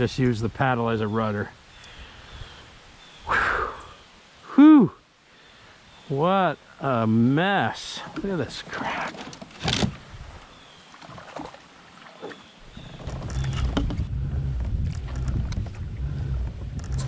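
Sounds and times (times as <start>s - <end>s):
pedal drive rumble with clicks: 12.7s - 17.0s
kayak hull knocking: 12.8s - 15.8s.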